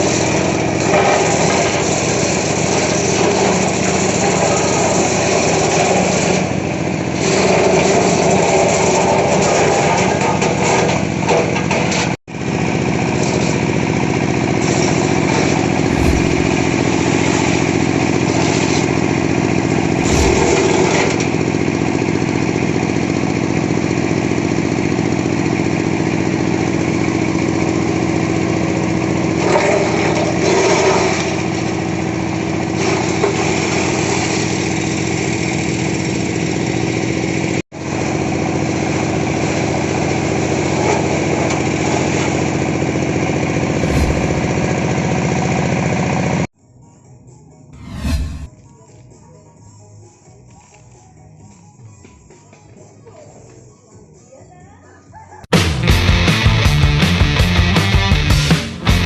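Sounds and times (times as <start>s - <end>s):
wood crusher engine running: 0.0s - 9.8s.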